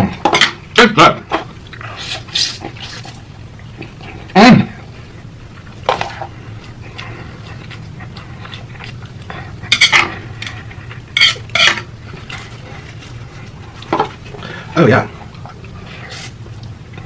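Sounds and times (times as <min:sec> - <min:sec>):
utensils clattering in bowl: 0:09.7 - 0:10.6, 0:11.2 - 0:12.5.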